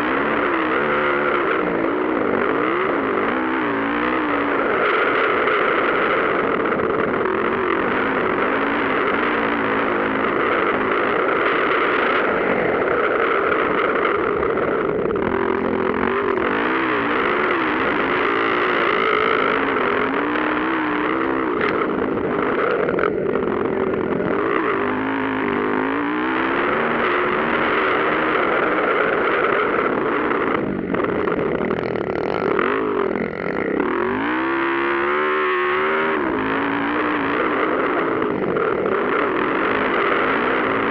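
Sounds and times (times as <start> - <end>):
motocross motorcycles racing: 0.0 - 40.9
motorcycle engine revving hard: 0.0 - 40.9.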